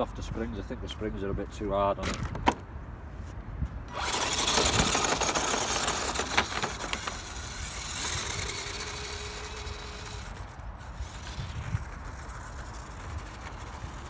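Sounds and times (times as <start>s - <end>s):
faint steady whine: 3.9s - 14.0s
rc car driving over rough ground: 3.9s - 14.0s.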